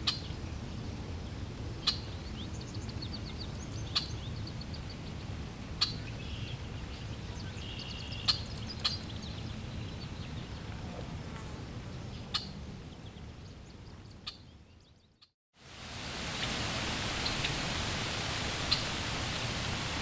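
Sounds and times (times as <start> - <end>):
birds chirping: 1.8 - 15.3, 16.2 - 20.0
rushing water hiss: 15.6 - 20.0.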